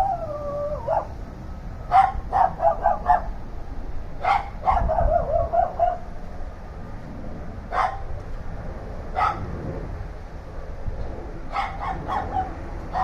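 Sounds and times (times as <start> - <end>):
dog barking: 0.8 - 1.1, 1.9 - 3.3, 4.2 - 6.0, 7.7 - 8.1, 9.2 - 9.5, 11.5 - 13.0.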